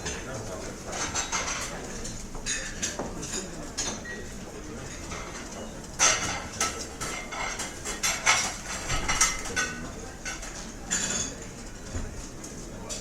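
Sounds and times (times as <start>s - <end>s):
cutlery and dishes clinking: 0.0s - 4.2s, 4.8s - 12.0s
background hubbub: 0.0s - 13.0s.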